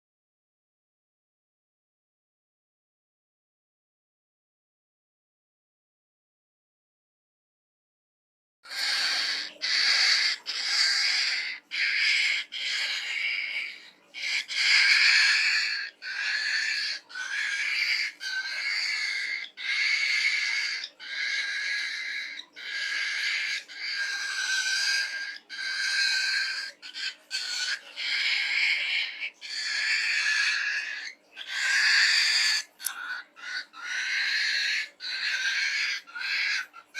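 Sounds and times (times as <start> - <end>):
cockatiel harsh calls: 8.7 - 36.9.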